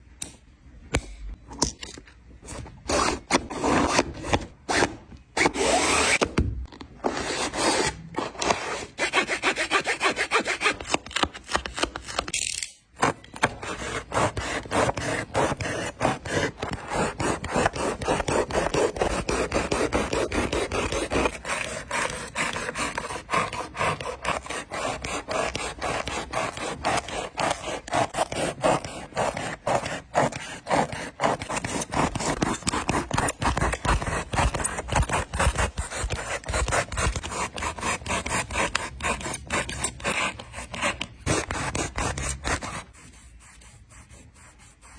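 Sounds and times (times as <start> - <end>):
scraping a sneaker by hand: 2.4 - 6.4, 13.0 - 44.9.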